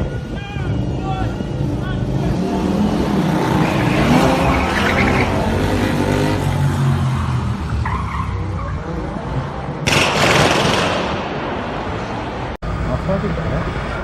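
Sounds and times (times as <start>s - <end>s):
tyres skidding on road: 2.2s - 9.4s.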